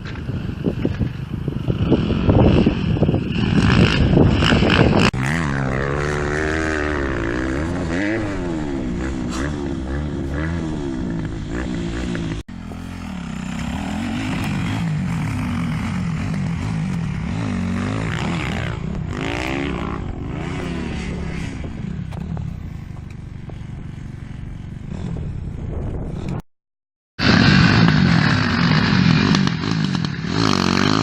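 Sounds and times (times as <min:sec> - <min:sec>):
motocross engine revving: 0:01.8 - 0:22.5, 0:27.2 - 0:31.0.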